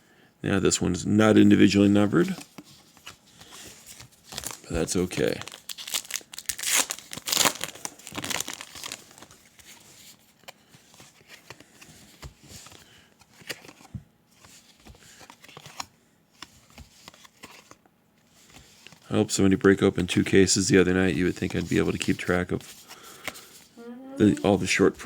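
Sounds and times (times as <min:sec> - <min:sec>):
plastic packaging crinkling: 0:03.8 - 0:09.8.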